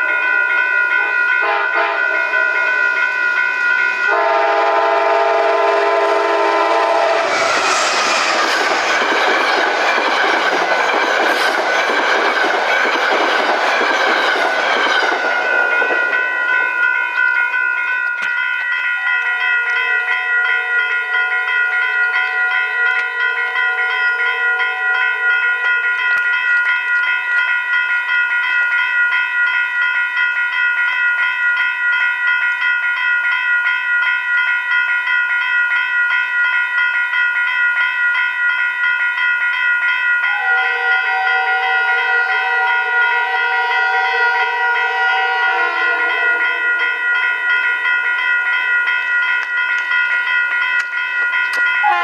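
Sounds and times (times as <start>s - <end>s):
lower train tones: 0.0s - 27.0s, 40.2s - 52.0s
train high-pitched whine: 1.0s - 18.3s.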